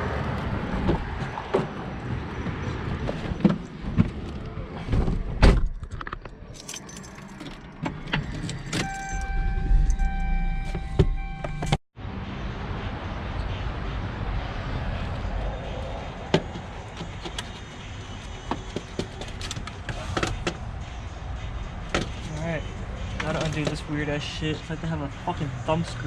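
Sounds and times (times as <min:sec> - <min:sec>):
car engine and road noise: 0:00.0 - 0:26.0
keys jangling and clicking: 0:06.5 - 0:09.3
car electronic warning chime: 0:08.8 - 0:11.8.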